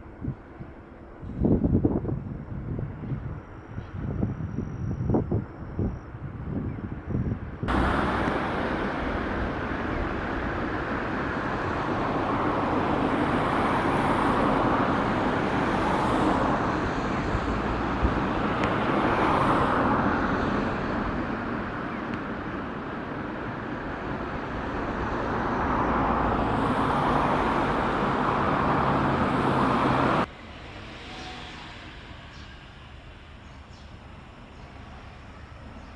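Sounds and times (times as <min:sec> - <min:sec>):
cars passing: 0:07.7 - 0:32.4
tyres rushing on road: 0:07.7 - 0:33.4.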